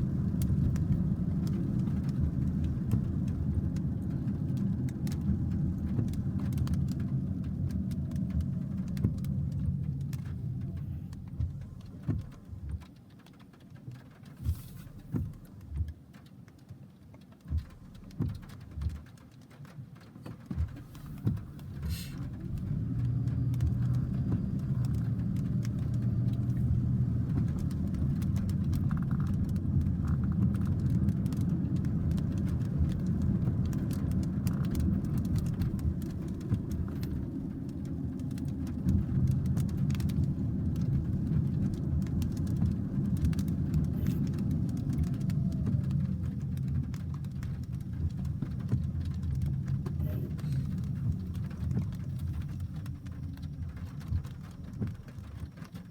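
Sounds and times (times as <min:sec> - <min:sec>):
sharp taps of raindrops: 0:00.0 - 0:55.9
heavy rain roar: 0:20.4 - 0:55.4.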